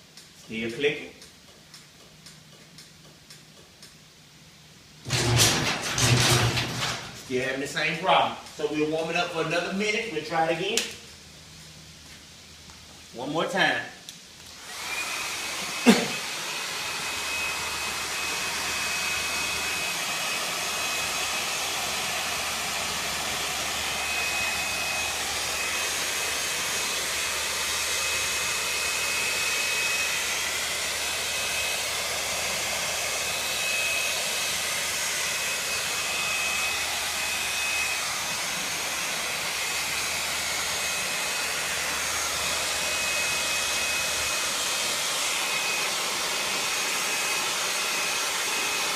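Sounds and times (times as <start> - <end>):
hair dryer blowing: 14.4 - 48.9.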